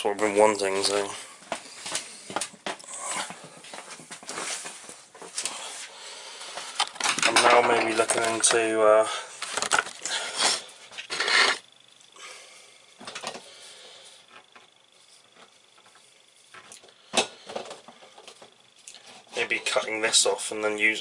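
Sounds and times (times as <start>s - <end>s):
handling rustles and knocks: 1.4s - 5.6s.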